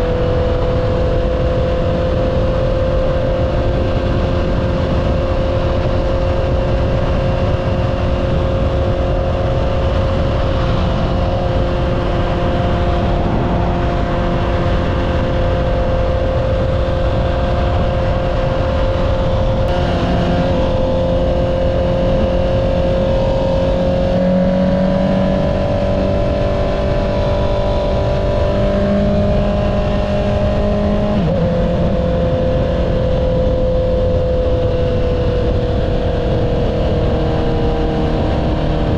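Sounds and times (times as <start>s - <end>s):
motorcycle engine cruising: 0.0s - 38.9s
wind noise: 0.0s - 38.9s.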